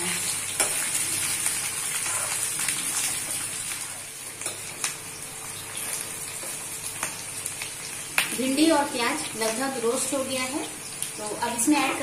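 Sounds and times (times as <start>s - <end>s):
vegetables sizzling in hot oil: 0.0s - 12.0s
metal spoon scraping a pan: 2.0s - 2.4s.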